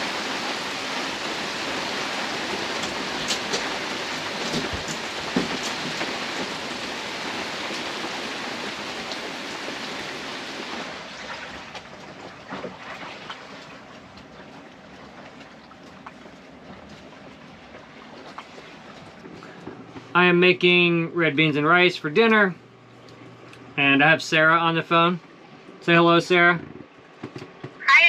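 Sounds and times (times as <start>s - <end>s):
heavy rain falling: 0.0s - 14.1s
raindrops striking close by: 0.0s - 27.5s.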